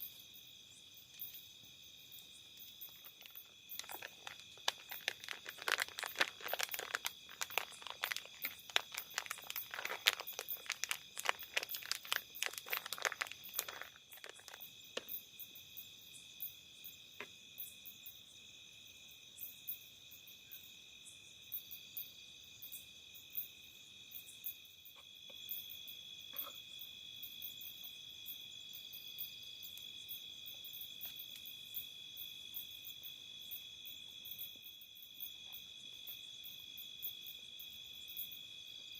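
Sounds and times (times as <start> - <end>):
insects chirping: 0.0 - 38.9
crinkling handling noises: 2.6 - 15.2.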